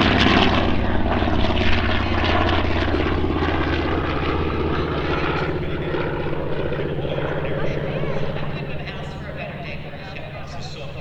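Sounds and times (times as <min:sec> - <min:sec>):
propeller plane engine: 0:00.0 - 0:11.0.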